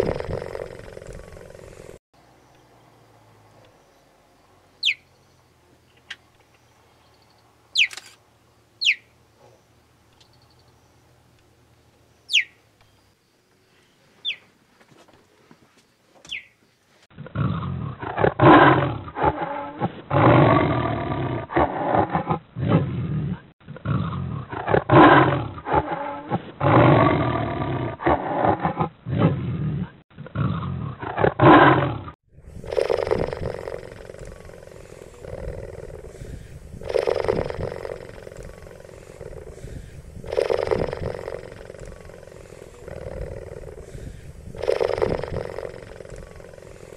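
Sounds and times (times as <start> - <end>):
cheetah chirps: 4.8 - 5.1, 7.7 - 8.1, 8.8 - 9.1, 12.3 - 12.6, 14.2 - 14.5
cheetah deep calls: 32.6 - 46.9.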